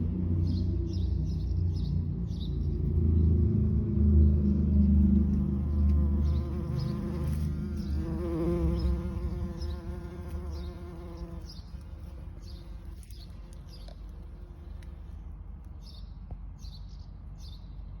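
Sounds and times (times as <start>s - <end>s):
bee buzzing: 5.2s - 15.1s.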